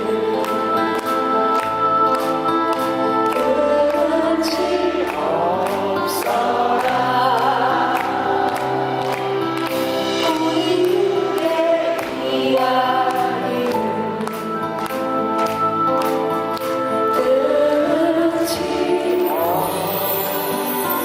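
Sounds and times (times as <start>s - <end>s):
choir-like chords: 3.3s - 14.6s, 17.1s - 21.0s.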